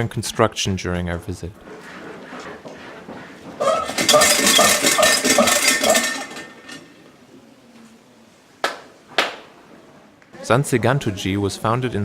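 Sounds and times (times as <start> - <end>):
metallic jangling and clinking: 3.6 - 7.0.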